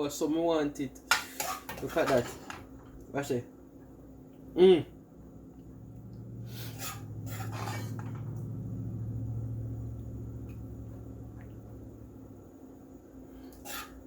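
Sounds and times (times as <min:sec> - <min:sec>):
spoon scraping in a pot: 0:01.1 - 0:02.6, 0:06.5 - 0:08.2, 0:13.4 - 0:14.0
low hum: 0:03.6 - 0:13.6.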